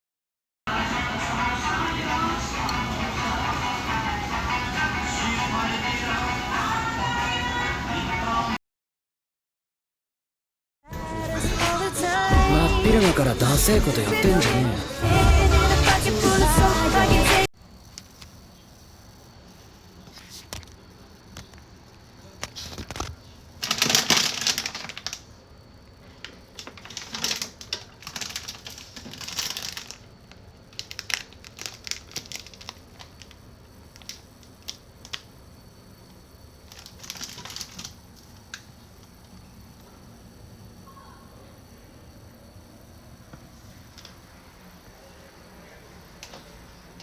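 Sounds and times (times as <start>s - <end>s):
rustling and crinkling handling noise: 22.4s - 25.4s, 26.0s - 35.3s, 36.6s - 39.2s.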